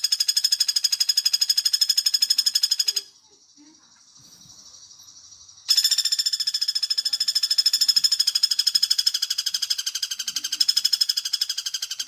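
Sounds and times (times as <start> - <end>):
woodpecker rattling trill: 0.0 - 3.2, 4.7 - 12.0.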